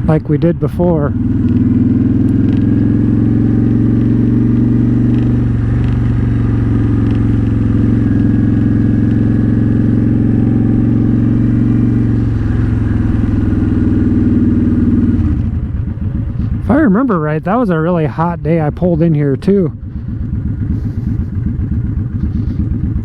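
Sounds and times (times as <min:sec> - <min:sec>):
motorcycle engine idling low: 0:00.0 - 0:23.0.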